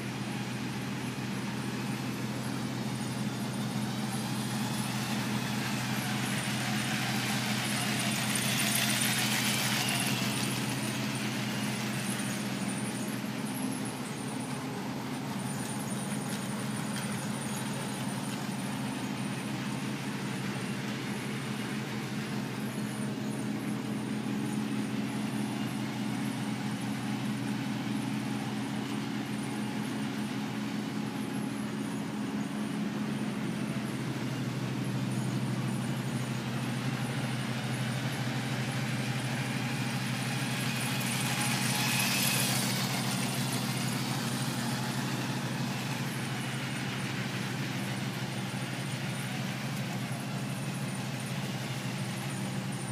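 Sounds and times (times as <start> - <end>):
toy train motors whirring: 0.7 - 30.3, 32.6 - 52.9.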